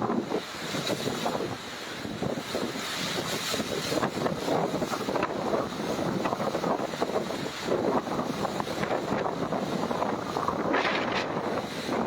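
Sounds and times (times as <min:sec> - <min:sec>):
strong gusty wind on microphone: 0:00.0 - 0:12.0
heavy rain: 0:03.9 - 0:12.0.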